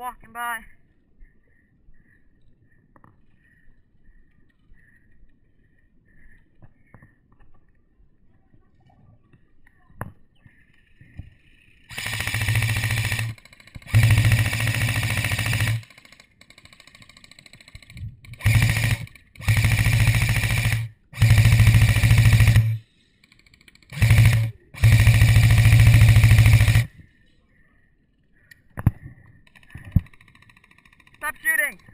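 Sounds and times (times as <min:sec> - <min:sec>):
airsoft gun firing full auto: 0:11.9 - 0:22.8, 0:23.5 - 0:26.9.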